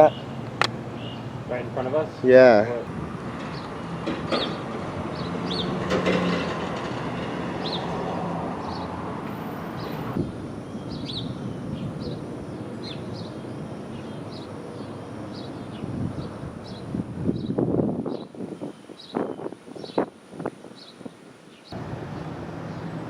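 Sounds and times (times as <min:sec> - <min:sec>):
bird chirping: 0:00.0 - 0:01.4, 0:03.4 - 0:05.8, 0:08.6 - 0:20.1.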